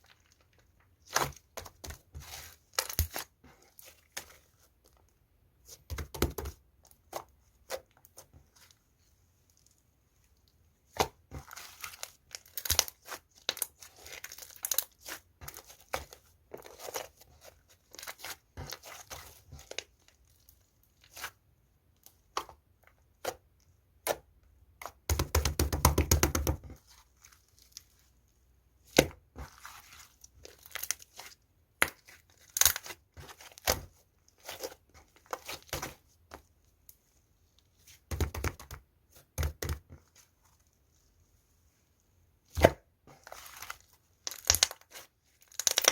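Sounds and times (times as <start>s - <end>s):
slime squishing by hand: 0.0s - 45.9s.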